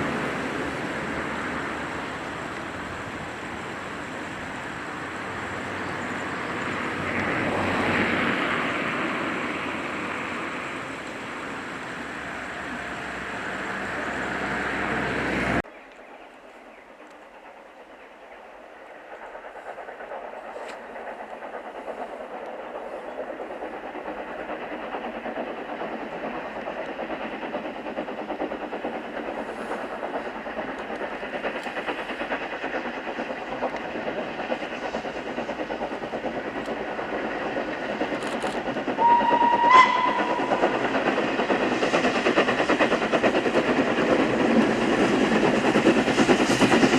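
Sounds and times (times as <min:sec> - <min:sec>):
steam train running: 0:00.0 - 0:46.9
steam whistle blast: 0:39.0 - 0:40.6.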